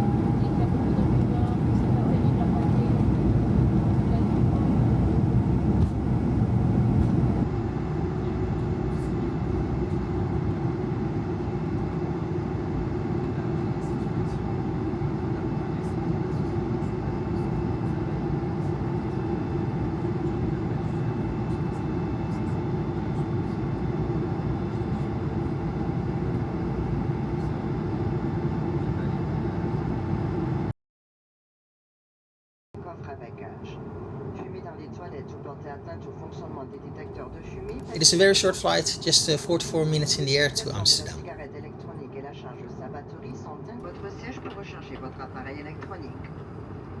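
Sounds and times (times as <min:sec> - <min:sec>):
jet engine cabin noise: 0:00.0 - 0:30.7, 0:37.7 - 0:41.2.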